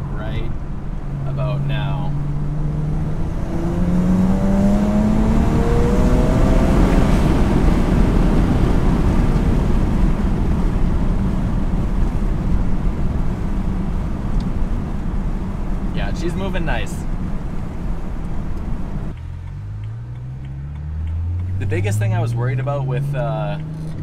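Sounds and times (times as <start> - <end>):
car engine revving under full throttle: 0.0 - 24.0.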